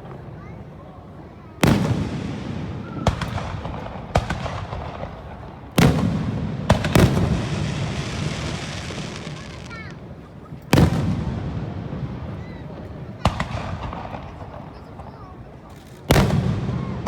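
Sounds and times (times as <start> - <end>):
fireworks bursting with loud bangs: 1.4 - 17.0
rumbling echo: 1.7 - 9.4.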